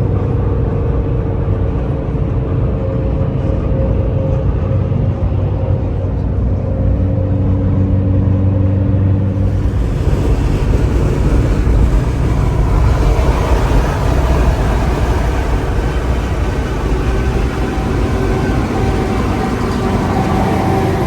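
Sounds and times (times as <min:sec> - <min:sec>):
low engine hum: 0:00.0 - 0:21.0
truck going by: 0:08.3 - 0:21.0.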